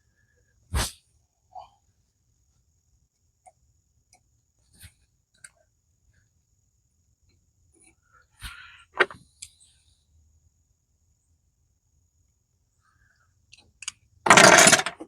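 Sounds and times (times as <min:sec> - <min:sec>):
metal clatter: 0:14.3 - 0:15.0.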